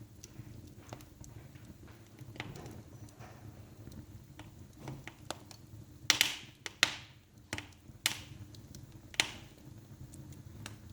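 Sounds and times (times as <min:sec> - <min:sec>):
wood fire crackling: 0:00.0 - 0:10.9
loud pops with hiss: 0:03.9 - 0:09.7.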